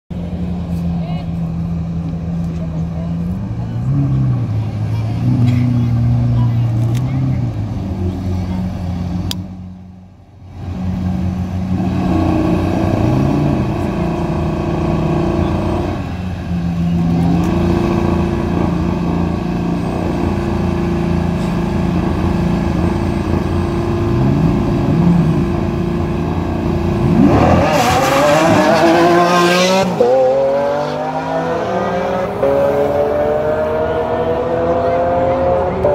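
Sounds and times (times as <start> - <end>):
car engines running: 0.1 - 35.9
engines revving: 0.1 - 35.9
cars accelerating hard: 10.5 - 35.9.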